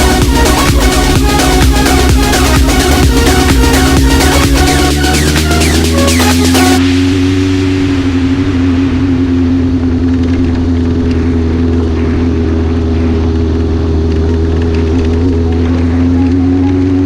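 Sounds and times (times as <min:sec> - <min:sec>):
motorcycle engine droning: 0:00.0 - 0:17.0.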